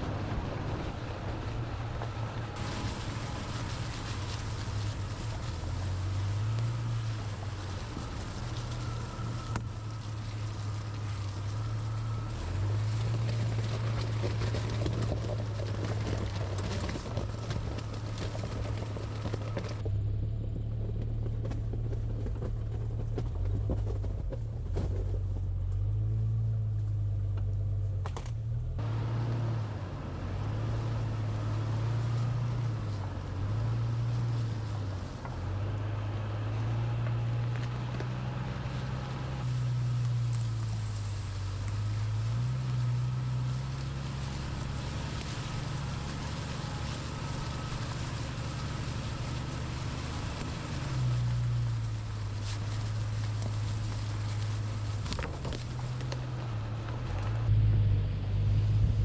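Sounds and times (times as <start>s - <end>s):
car engine droning: 0.0s - 59.0s
tyre and road noise: 0.0s - 59.0s.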